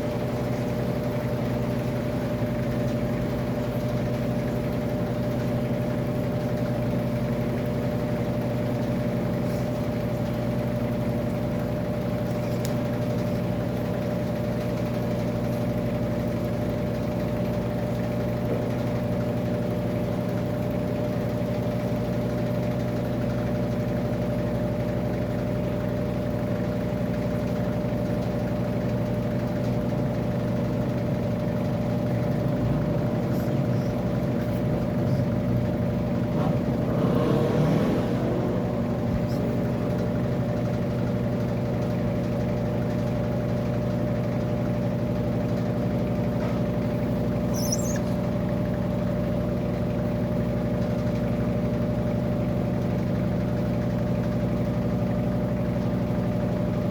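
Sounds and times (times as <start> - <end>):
washing machine motor hum: 38.4 - 56.9.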